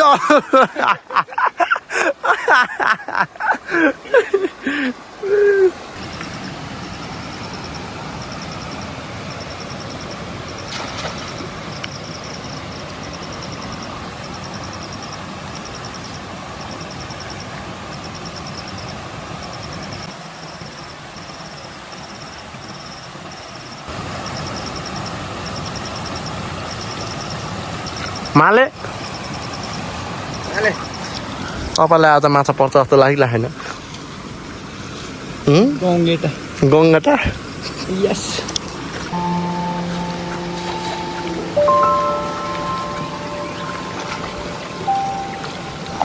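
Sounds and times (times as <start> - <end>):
high chirping: 39.1 - 46.0.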